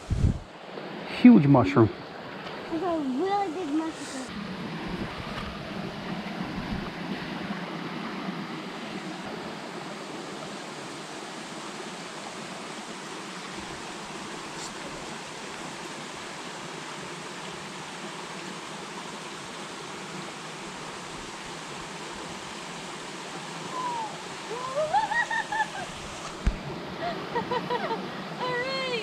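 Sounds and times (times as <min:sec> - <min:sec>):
small creek flowing: 0:00.0 - 0:29.0.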